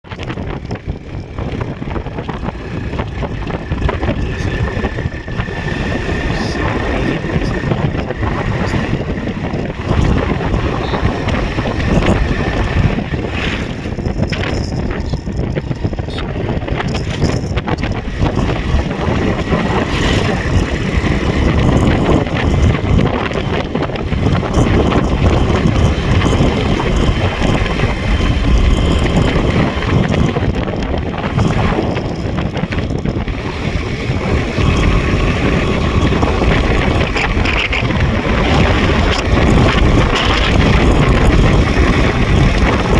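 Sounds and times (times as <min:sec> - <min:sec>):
motorcycle running: 0:00.0 - 0:42.9
wind buffeting microphone: 0:00.0 - 0:42.9.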